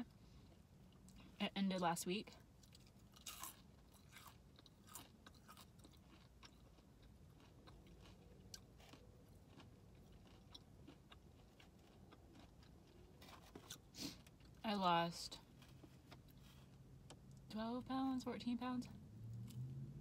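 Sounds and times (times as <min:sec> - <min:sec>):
low steady hum: 0:00.0 - 0:20.0
person chewing crunchy food: 0:02.6 - 0:14.6.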